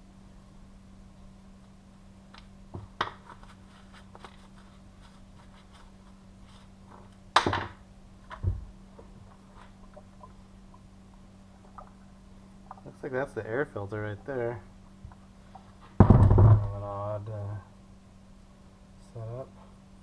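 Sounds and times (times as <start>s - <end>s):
faint steady hum: 0.0s - 20.0s
dull thump: 16.0s - 16.8s.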